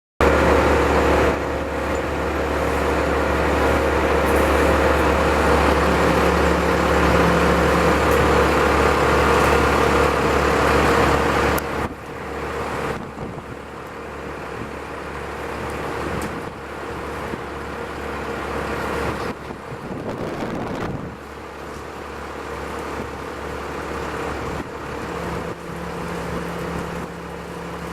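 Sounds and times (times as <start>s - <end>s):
large engine running: 0.2s - 27.9s.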